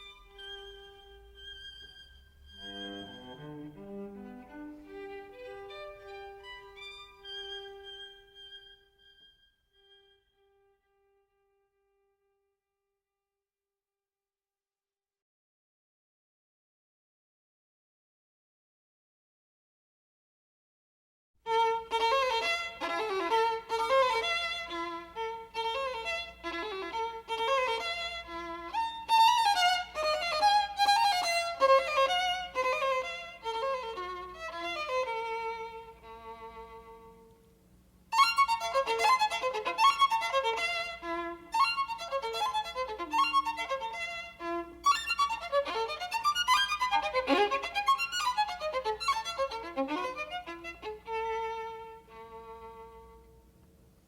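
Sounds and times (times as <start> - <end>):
violin melody background music: 0.0 - 10.6, 21.5 - 37.4, 38.1 - 53.4.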